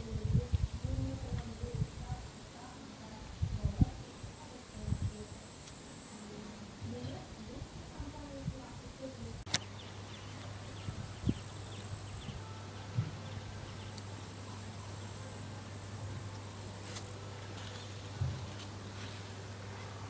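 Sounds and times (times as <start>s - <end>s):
steady low hum: 0.0s - 20.0s
sharp click: 9.5s - 9.7s
crickets trilling: 9.5s - 12.6s.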